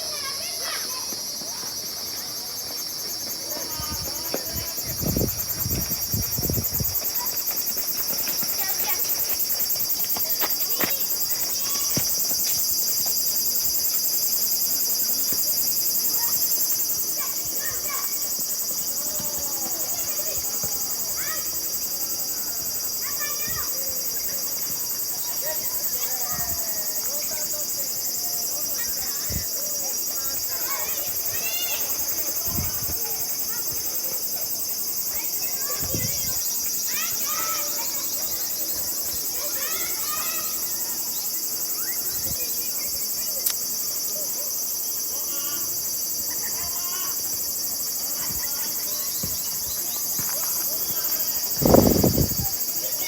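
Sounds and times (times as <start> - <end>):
distant children shouting: 0.0 - 6.1, 6.7 - 13.2, 15.5 - 53.0
high-pitched insect drone: 0.0 - 53.0
distant shouting voices: 35.1 - 51.6.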